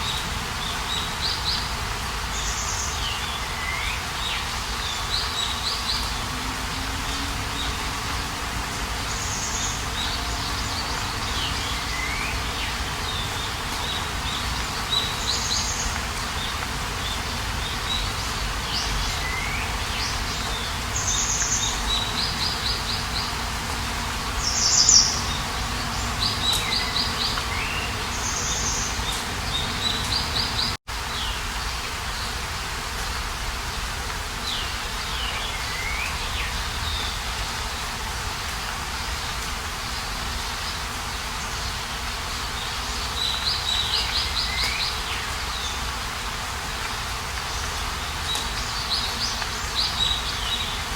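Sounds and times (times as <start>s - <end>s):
birds chirping and trilling: 0.0s - 31.4s
outdoor ambience hiss: 0.0s - 50.9s.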